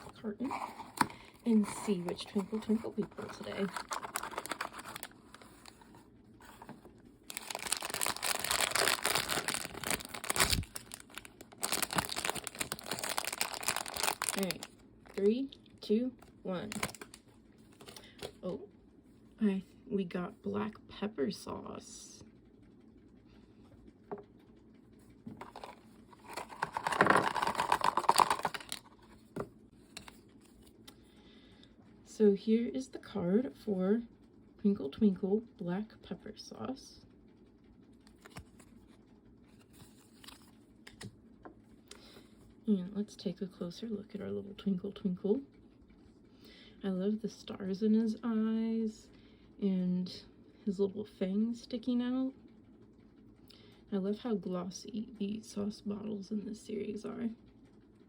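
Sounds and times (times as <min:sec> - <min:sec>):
packaging crinkling and tearing: 0:00.0 - 0:06.7, 0:07.3 - 0:15.2, 0:16.6 - 0:18.3, 0:25.4 - 0:29.2.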